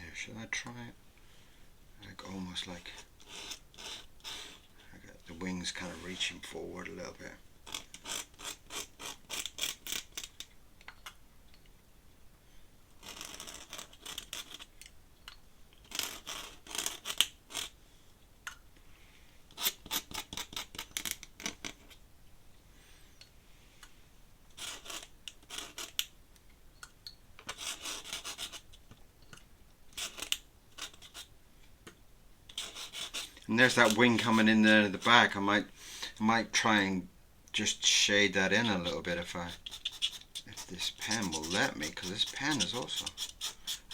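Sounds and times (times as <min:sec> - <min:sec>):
pen nib scratching paper: 0:07.7 - 0:10.0, 0:27.6 - 0:28.7, 0:32.6 - 0:34.9, 0:38.5 - 0:43.9.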